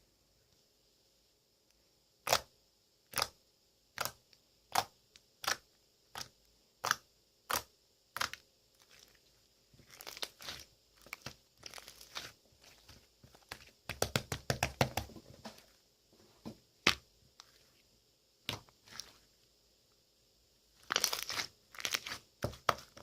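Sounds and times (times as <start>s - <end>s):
slime crackling: 4.0s - 15.1s, 20.8s - 23.0s
slime popping: 9.8s - 15.1s, 20.8s - 23.0s.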